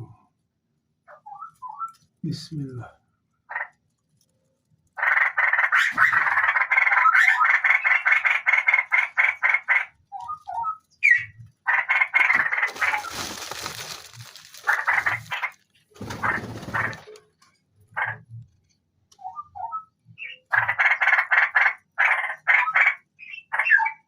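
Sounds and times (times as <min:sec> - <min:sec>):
nestlings giving rasping calls: 0:05.0 - 0:09.9, 0:10.6 - 0:17.0, 0:20.2 - 0:23.9.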